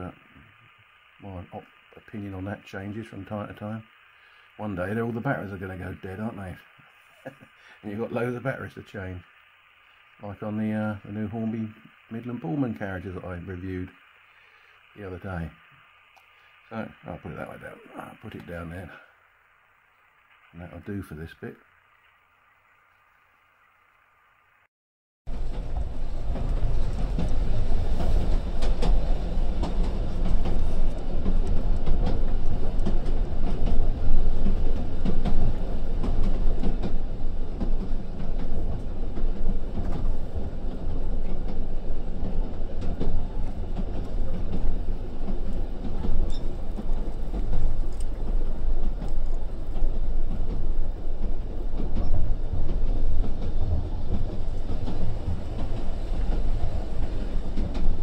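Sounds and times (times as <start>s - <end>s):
faint clicks: 13.9s - 16.8s, 26.3s - 58.0s
loud rumble of wheels on rails: 25.3s - 58.0s.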